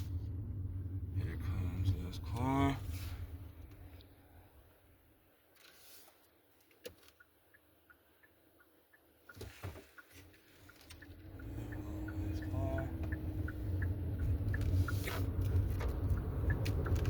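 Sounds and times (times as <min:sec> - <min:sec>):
engine and road rumble: 0:00.0 - 0:17.0
turn signal ticking: 0:07.1 - 0:17.0.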